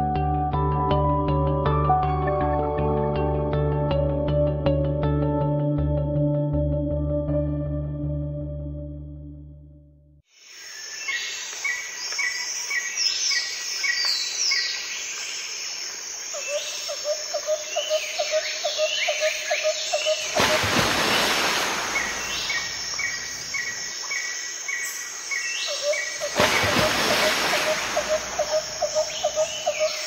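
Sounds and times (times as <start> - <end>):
birds chirping: 17.8 - 30.0
burst of rushing noise: 20.4 - 23.5
bird trill: 27.5 - 30.0.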